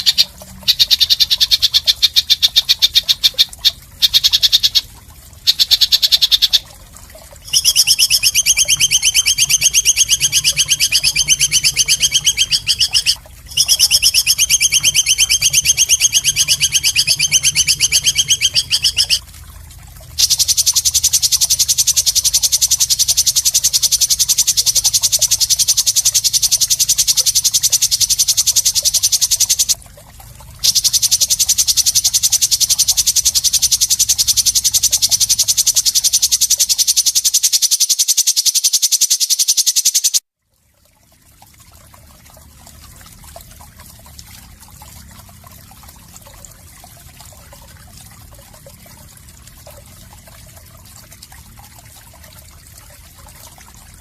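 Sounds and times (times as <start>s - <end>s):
bird harsh high-pitched trill: 0.0s - 4.9s, 7.4s - 19.2s, 20.2s - 29.8s, 30.6s - 40.2s.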